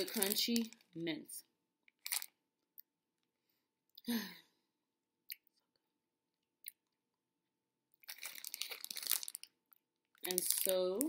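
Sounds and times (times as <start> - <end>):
person chewing candy: 1.8 - 3.0, 5.2 - 7.2, 7.9 - 10.7.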